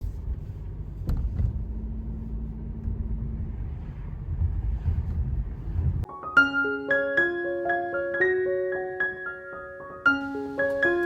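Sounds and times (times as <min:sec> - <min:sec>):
low outdoor rumble: 0:00.0 - 0:06.1.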